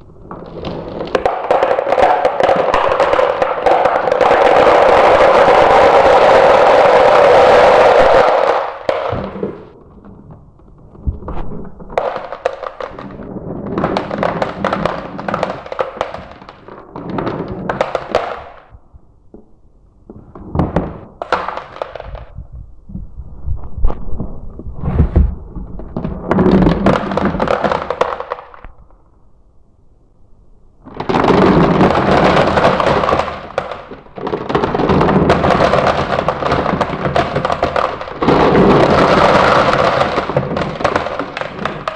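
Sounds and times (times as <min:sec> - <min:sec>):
marbles clacking down marble run: 0:01.0 - 0:09.4, 0:31.2 - 0:41.9.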